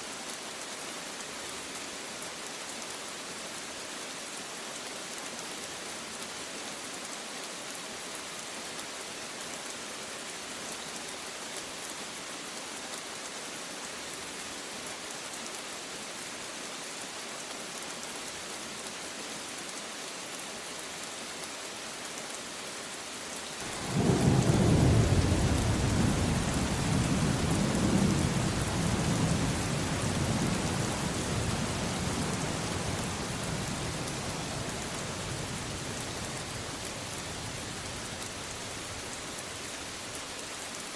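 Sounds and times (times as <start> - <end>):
steady rain: 0.0 - 40.9
thunder rumble: 23.7 - 39.0.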